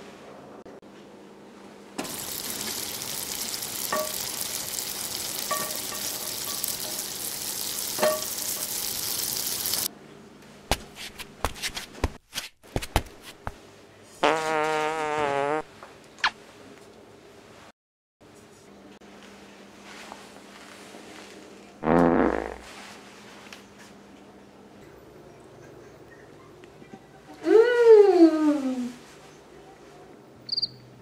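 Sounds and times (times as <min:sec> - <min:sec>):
frying pan sizzling: 0:02.0 - 0:09.9.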